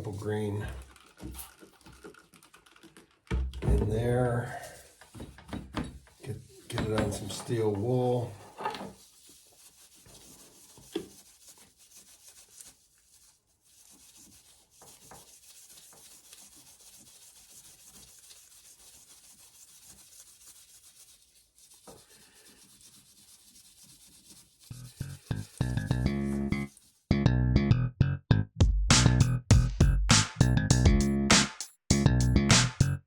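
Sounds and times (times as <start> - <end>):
steel wool scrubbing: 3.9 - 27.1.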